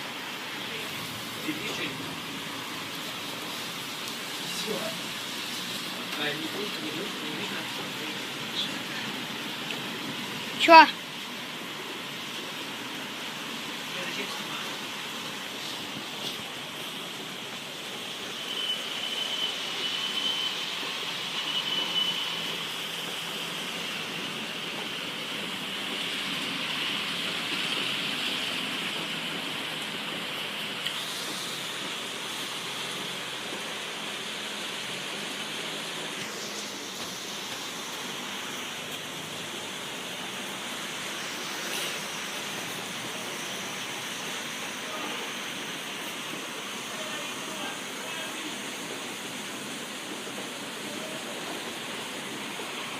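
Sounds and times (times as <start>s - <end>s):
heavy rain pouring: 0.0s - 52.9s.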